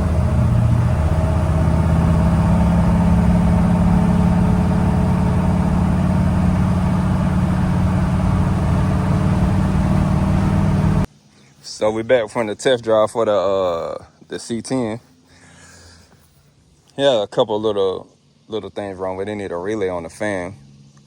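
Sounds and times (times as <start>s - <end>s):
truck engine running: 0.0s - 11.1s.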